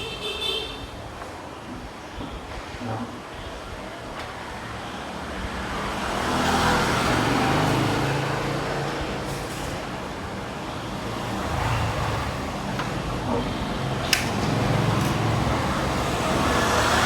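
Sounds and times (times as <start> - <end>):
traffic hum: 0.0 - 17.0
vehicle passing: 5.5 - 17.0.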